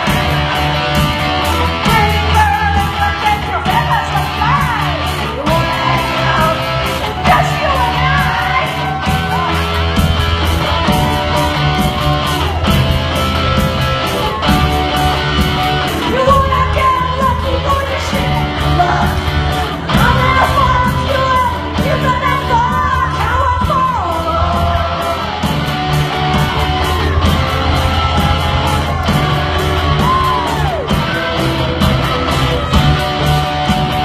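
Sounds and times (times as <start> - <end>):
rock band playing: 0.0 - 34.0
woman singing: 1.8 - 9.6, 16.0 - 19.2, 19.9 - 25.3.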